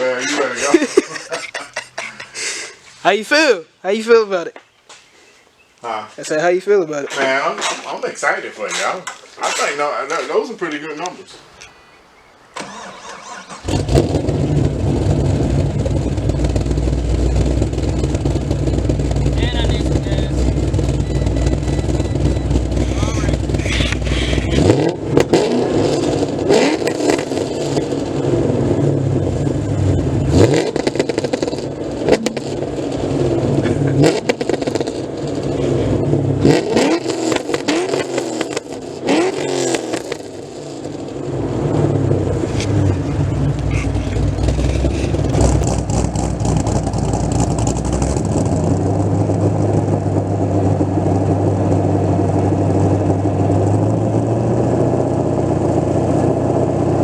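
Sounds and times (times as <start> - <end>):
car engine idling: 10.0 - 57.0
car engine revving: 12.5 - 57.0
exhaust cracks: 12.5 - 57.0.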